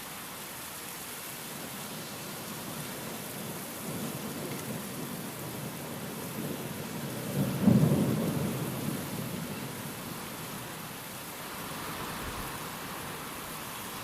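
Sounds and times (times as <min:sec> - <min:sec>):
steady rain falling: 0:00.0 - 0:14.0
thunder rumbling: 0:03.4 - 0:10.7.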